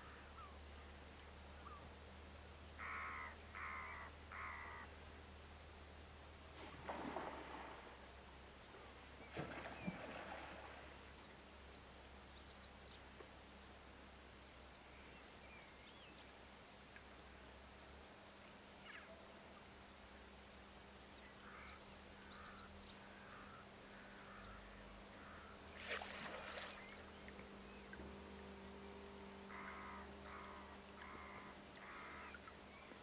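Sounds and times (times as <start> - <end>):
faint low hum: 0.0 - 33.0
birds chirping: 26.4 - 33.0
harsh low bird calls: 29.5 - 33.0.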